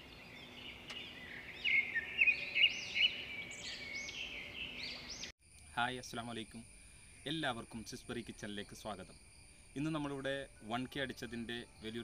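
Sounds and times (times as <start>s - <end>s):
birds chirping and trilling: 0.0s - 5.3s, 8.2s - 12.0s.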